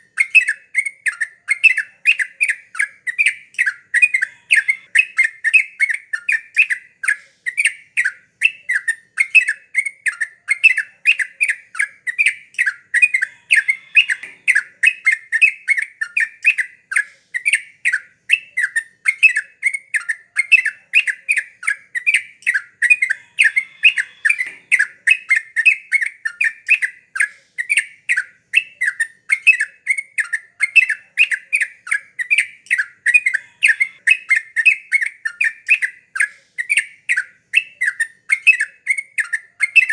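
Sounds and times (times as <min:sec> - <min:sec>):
bulbul chattering: 0:00.1 - 0:39.9.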